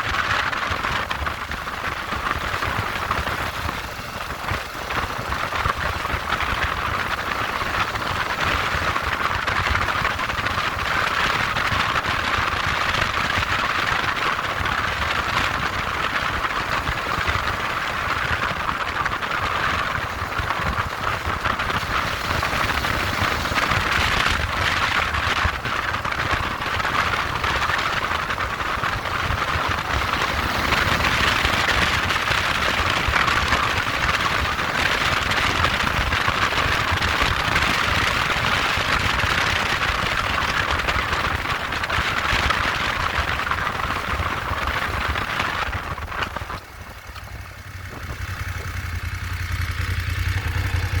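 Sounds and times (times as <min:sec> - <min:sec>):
motorcycle engine rumble: 0:00.0 - 0:51.0
wind and road noise rush: 0:00.0 - 0:51.0.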